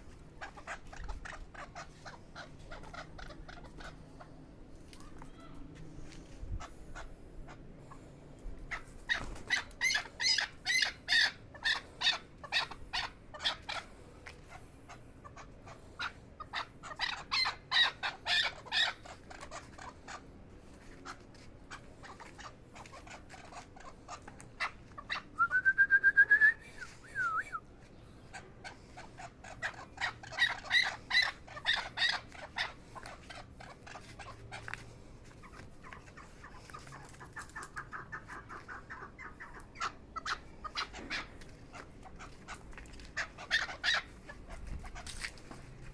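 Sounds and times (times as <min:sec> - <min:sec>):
partridge chuck calls: 0:00.3 - 0:04.4, 0:08.7 - 0:20.4, 0:28.0 - 0:45.2.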